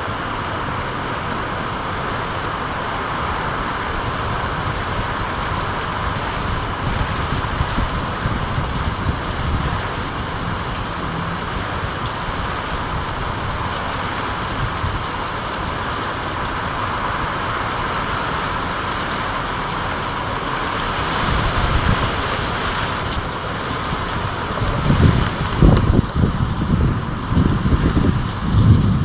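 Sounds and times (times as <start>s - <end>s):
steady rain hissing: 0.0s - 29.0s
low rumble: 23.9s - 29.0s.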